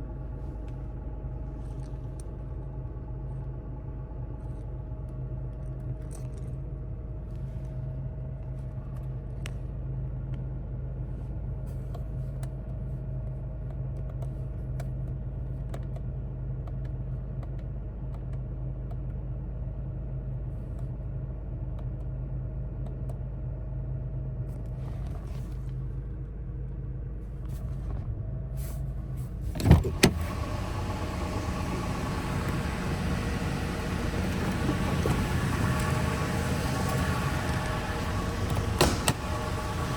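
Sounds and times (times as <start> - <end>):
engine idling: 18.1 - 39.9.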